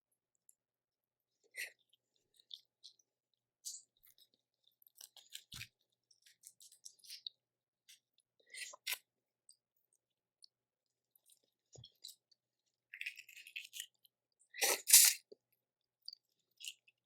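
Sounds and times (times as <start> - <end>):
shellfish clicks and crunches: 12.9 - 15.3.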